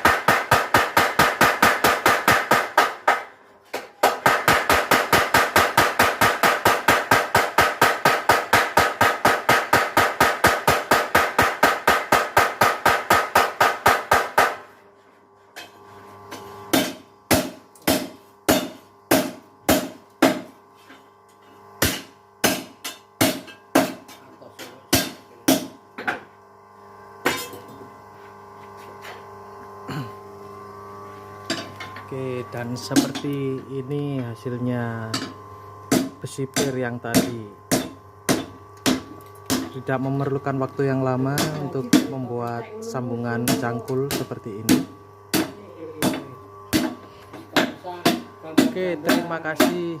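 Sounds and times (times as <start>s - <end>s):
power hammer pounding iron: 0.0s - 3.3s, 4.0s - 14.7s, 16.7s - 20.5s, 21.8s - 24.0s, 24.9s - 25.8s, 35.1s - 39.8s, 41.2s - 42.2s, 43.4s - 49.9s
steady hum: 0.0s - 50.0s.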